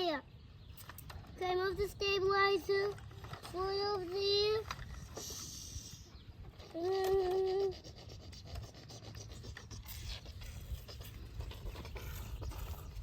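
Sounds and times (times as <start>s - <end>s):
toy trucks scraping through dirt: 2.5s - 13.0s.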